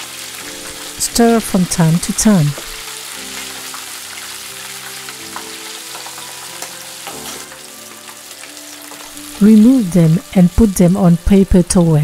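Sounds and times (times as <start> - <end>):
oil sizzling while deep-frying: 0.0 - 12.0
soft background music: 0.0 - 12.0.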